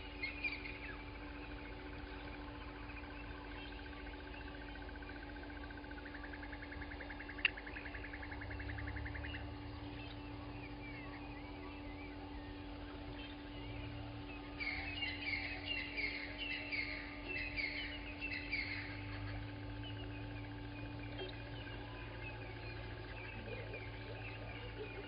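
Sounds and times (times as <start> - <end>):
birds chirping and twittering: 0.0 - 25.0
bird trilling: 6.3 - 25.0.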